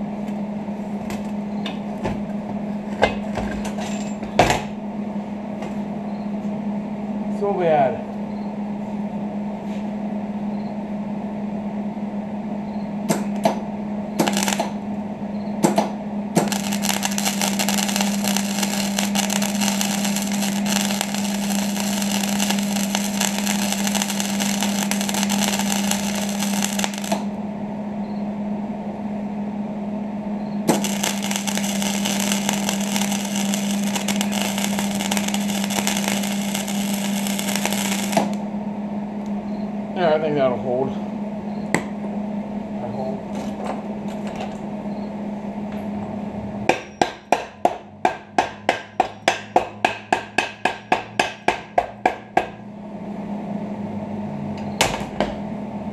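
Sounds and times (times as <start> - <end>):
steady low hum: 0.0 - 55.9
arc welding crackle: 14.2 - 14.9, 15.6 - 27.4, 30.6 - 38.5.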